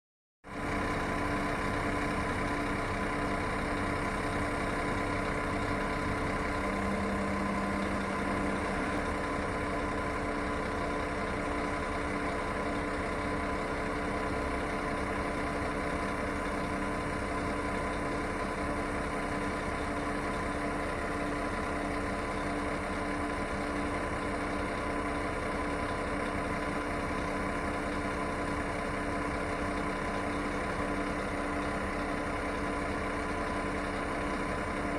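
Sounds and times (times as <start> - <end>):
coach diesel engine idling: 0.5 - 34.9.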